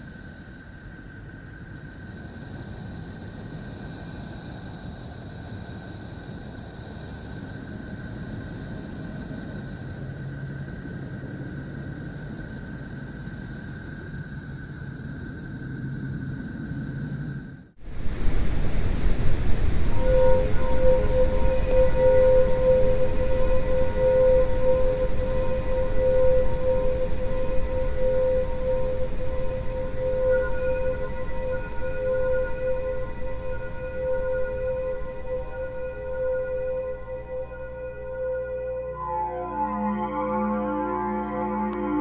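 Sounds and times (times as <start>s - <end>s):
rushing rumble: 16.4s - 39.0s
loud droning sound: 19.0s - 42.0s
faint high tones: 19.8s - 42.0s.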